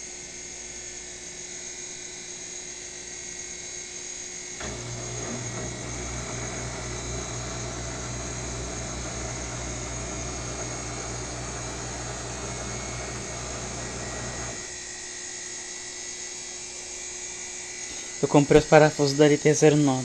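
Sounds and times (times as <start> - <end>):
washing machine motor whine: 0.0 - 15.5
low whirring hum: 4.0 - 14.8.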